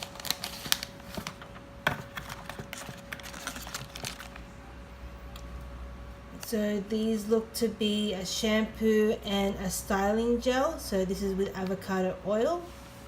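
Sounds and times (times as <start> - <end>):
packaging rustling: 0.0 - 4.5.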